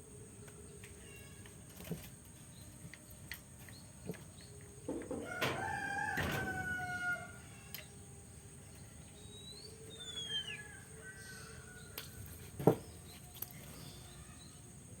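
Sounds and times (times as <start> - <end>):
bird whistling gliding notes: 9.1 - 12.0.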